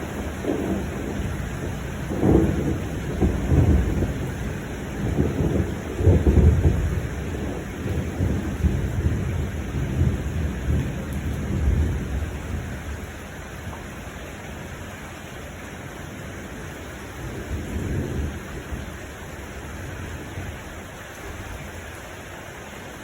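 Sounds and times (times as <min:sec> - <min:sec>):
rolling thunder: 0:00.0 - 0:13.1, 0:17.2 - 0:19.0
steady rain: 0:00.0 - 0:23.0.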